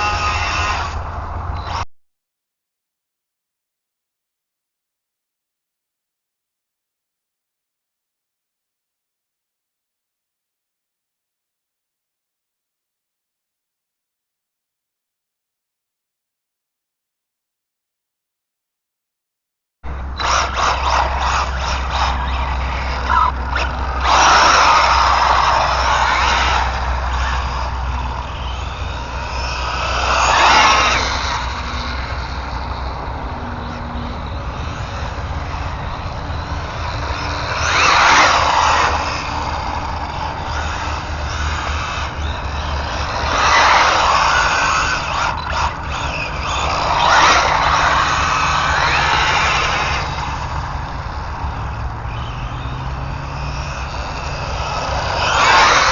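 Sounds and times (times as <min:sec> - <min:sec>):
rc car driving past: 0:00.0 - 0:01.8, 0:19.9 - 0:55.9.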